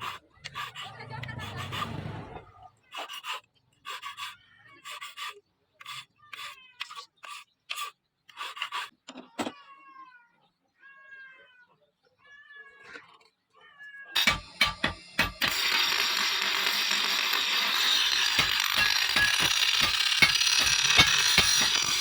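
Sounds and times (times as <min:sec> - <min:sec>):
cat meowing: 0:09.6 - 0:13.0, 0:13.6 - 0:14.2.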